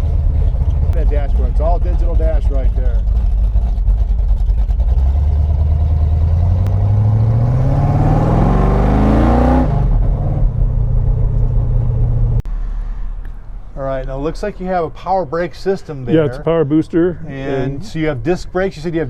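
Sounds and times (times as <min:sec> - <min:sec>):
car engine idling and revving: 0:00.0 - 0:13.8.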